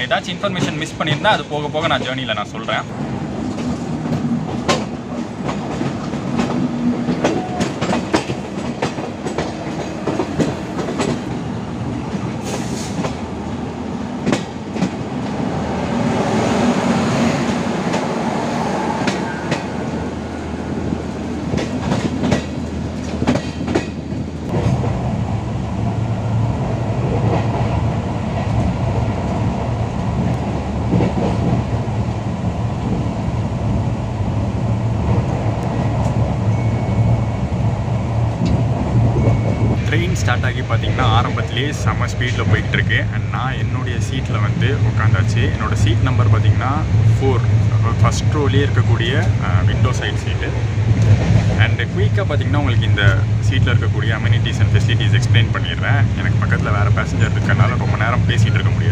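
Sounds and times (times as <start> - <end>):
train rumbling at speed: 0.0 - 58.9
wheels clacking over rail joints: 0.6 - 13.4, 20.8 - 25.1.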